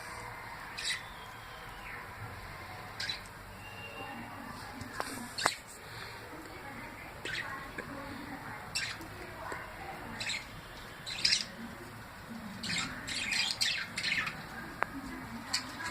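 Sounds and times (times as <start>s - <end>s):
parrot squawking: 11.1s - 11.6s.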